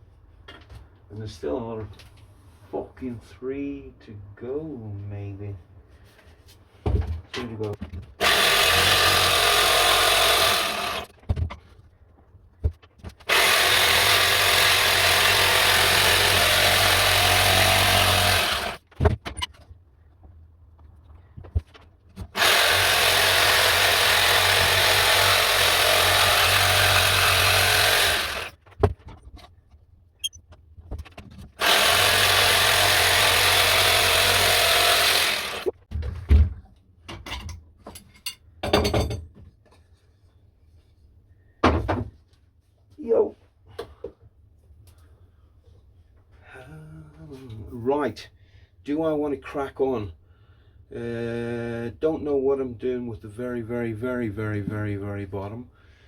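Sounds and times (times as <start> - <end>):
electric jigsaw cutting wood: 8.2 - 11.2, 13.2 - 18.8, 22.3 - 28.6, 31.6 - 35.8.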